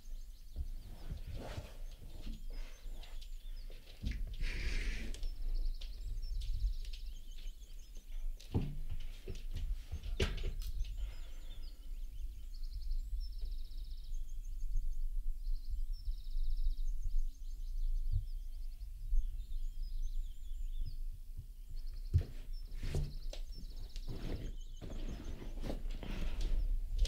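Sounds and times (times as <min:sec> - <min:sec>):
small birds trilling: 0:00.0 - 0:27.0.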